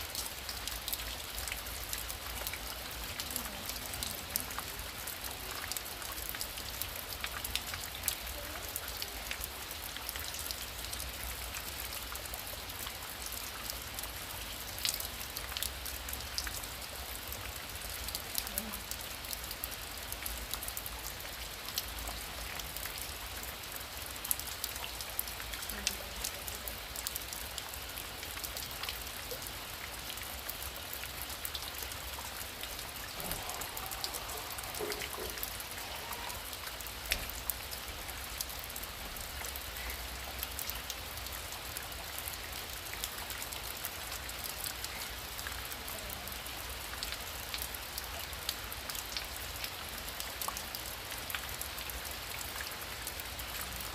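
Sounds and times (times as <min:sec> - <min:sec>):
rain drops pattering close by: 0:00.0 - 0:53.9
heavy rain hiss: 0:31.2 - 0:41.0.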